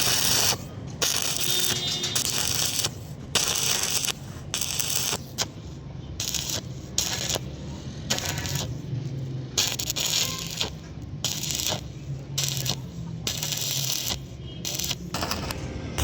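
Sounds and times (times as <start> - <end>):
arc welding crackling: 0.0 - 16.0.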